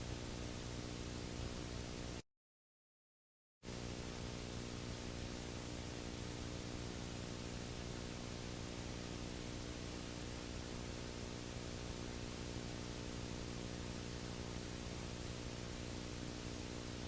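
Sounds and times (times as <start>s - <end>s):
low electrical hum: 0.0s - 2.2s, 3.7s - 17.0s
steady hiss: 3.7s - 17.0s.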